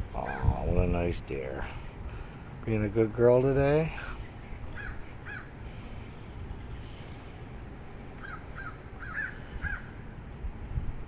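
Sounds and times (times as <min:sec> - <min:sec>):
bird calling: 0:00.0 - 0:00.7, 0:04.0 - 0:07.3, 0:08.2 - 0:10.0
low background rumble: 0:00.0 - 0:11.0.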